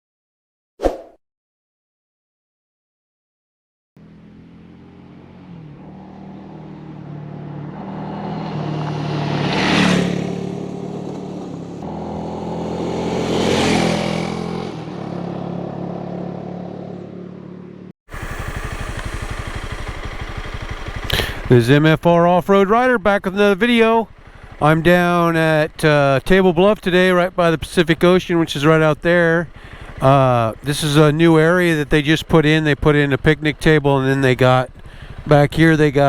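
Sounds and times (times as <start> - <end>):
motorcycle engine passing by: 4.0 - 21.9, 24.0 - 26.0, 28.0 - 36.0.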